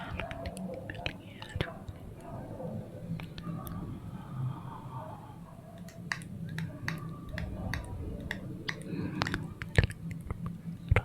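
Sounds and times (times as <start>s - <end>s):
low steady hum: 0.0s - 11.0s
sharp clicks and taps: 5.8s - 11.0s.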